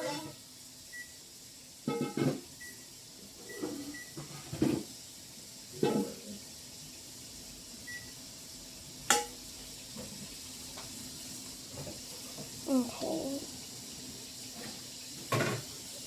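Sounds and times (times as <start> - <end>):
kitchen timer beeps: 0.9 - 1.2, 2.6 - 2.9, 3.5 - 4.2, 7.9 - 8.2.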